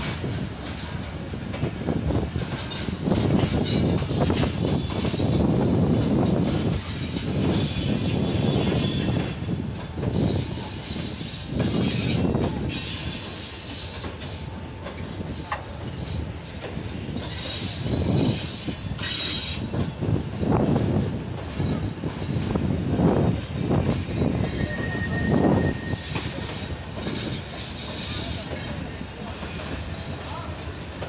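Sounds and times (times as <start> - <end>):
train wheels rumbling on rails: 0.0 - 31.0
high wheel squeal: 2.6 - 16.4, 17.2 - 20.2, 23.5 - 29.3.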